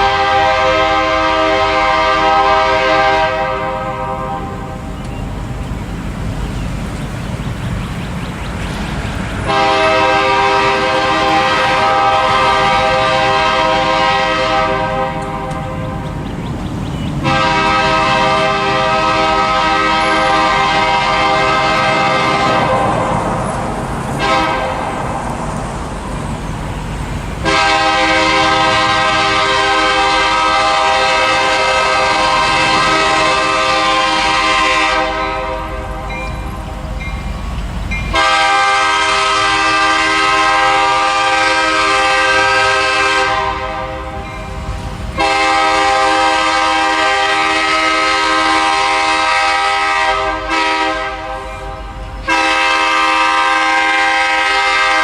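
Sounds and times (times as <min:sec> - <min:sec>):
locomotive air horn blasts: 0:00.0 - 0:04.8, 0:09.5 - 0:16.0, 0:17.2 - 0:23.2, 0:24.2 - 0:25.0, 0:27.4 - 0:36.2, 0:38.1 - 0:44.3, 0:45.2 - 0:55.0
low train rumble: 0:00.0 - 0:55.0.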